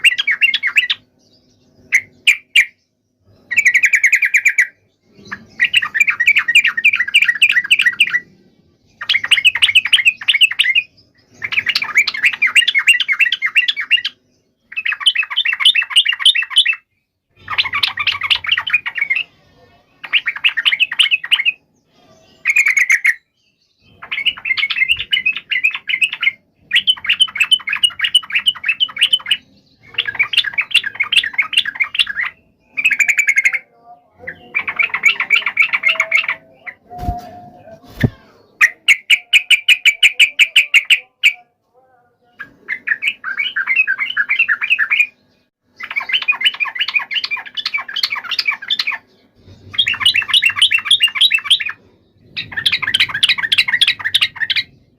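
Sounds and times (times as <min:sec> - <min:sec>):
bulbuls chattering calls: 0:03.5 - 0:08.3, 0:09.0 - 0:16.8, 0:17.4 - 0:19.3, 0:23.8 - 0:41.4, 0:45.8 - 0:54.8.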